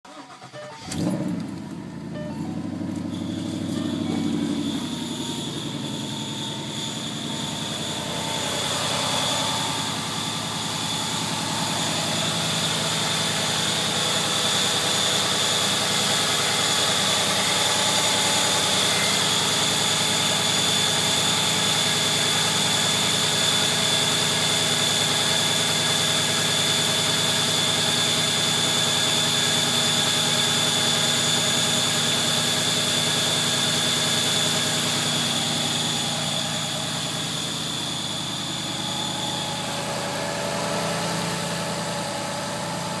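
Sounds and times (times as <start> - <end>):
car engine idling: 0.1 - 43.0
high-pitched belt squeal: 2.2 - 23.6, 29.7 - 42.4.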